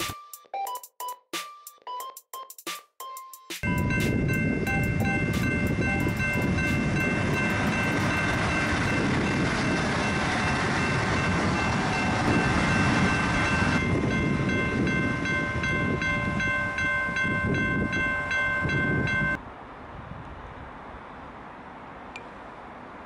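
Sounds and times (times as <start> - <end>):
pulsing level crossing signal: 3.6 - 19.4
wheels rattling over track: 3.6 - 19.4
diesel train passing: 3.6 - 23.0.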